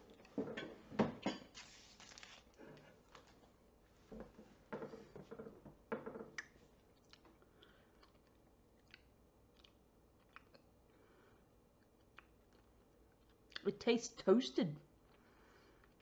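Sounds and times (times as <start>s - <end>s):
person sucking and chewing candy: 6.9s - 11.0s.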